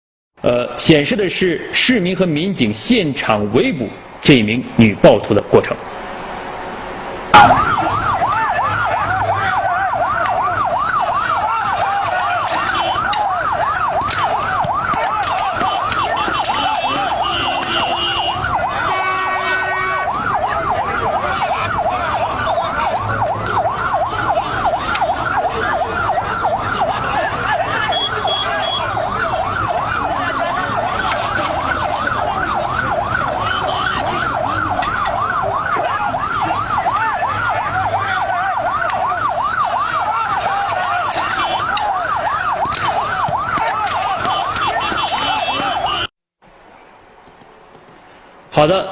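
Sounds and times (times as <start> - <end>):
emergency siren yelping: 5.9 - 46.1
steady siren tone: 5.9 - 46.1.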